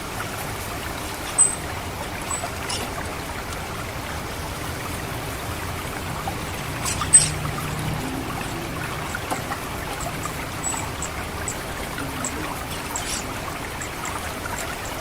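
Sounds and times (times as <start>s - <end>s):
water trickling and gurgling: 0.0s - 15.0s
thrush high cit calls: 1.3s - 3.1s, 6.5s - 15.0s.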